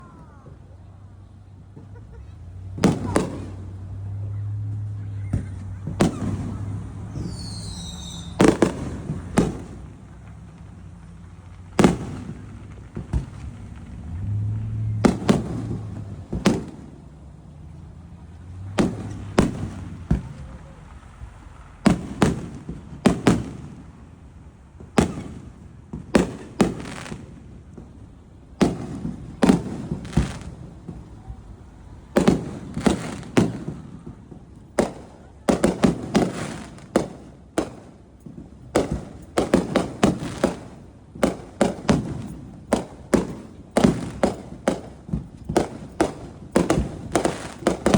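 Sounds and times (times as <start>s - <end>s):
fireworks bangs and cracks: 0.0s - 47.9s.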